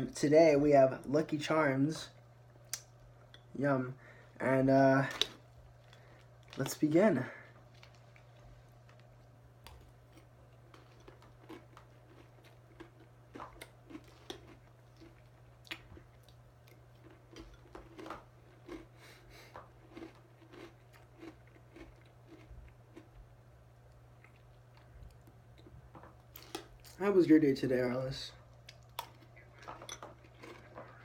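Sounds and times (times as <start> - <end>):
steady low hum: 0.0 - 31.0
person chewing crunchy cereal: 7.4 - 23.3, 23.9 - 27.0, 28.5 - 31.0.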